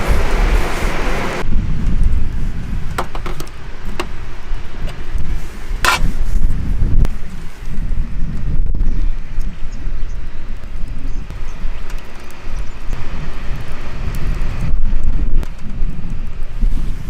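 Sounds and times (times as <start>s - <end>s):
steady hiss: 0.0s - 1.4s
wind buffeting microphone: 0.0s - 17.0s.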